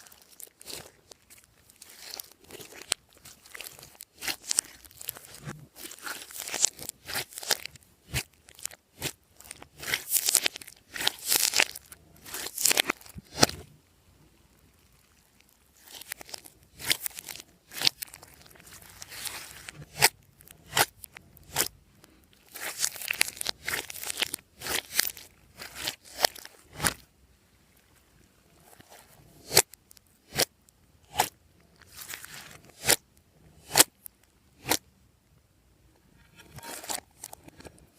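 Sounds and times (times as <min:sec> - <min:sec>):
hands kneading crackling slime: 0:00.0 - 0:13.7, 0:15.0 - 0:27.0.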